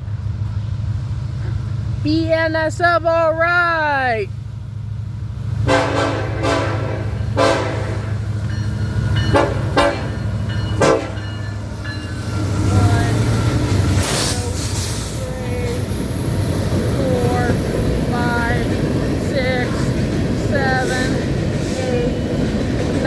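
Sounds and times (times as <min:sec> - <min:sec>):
low diesel rumble: 0:00.0 - 0:23.0
locomotive air horn blasts: 0:05.6 - 0:08.4, 0:09.3 - 0:11.4.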